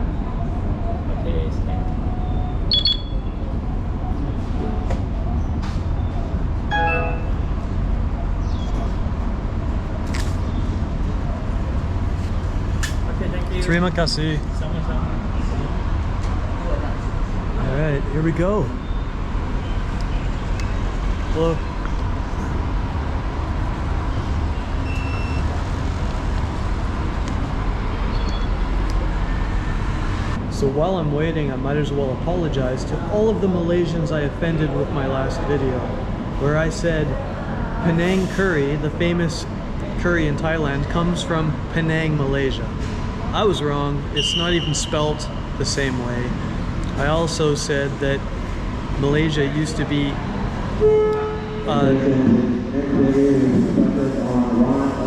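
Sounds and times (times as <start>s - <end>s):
traffic engines rumbling: 0.0s - 55.0s
faint short beep: 2.3s - 3.4s, 6.7s - 7.5s, 24.8s - 25.5s
short tone: 2.3s - 3.4s, 6.7s - 7.6s, 24.8s - 25.5s, 50.8s - 51.8s.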